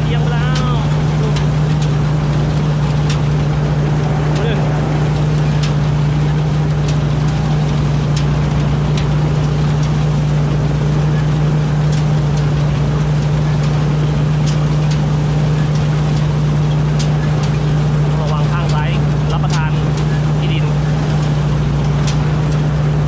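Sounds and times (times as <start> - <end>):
diesel engine drone: 0.8 - 6.2.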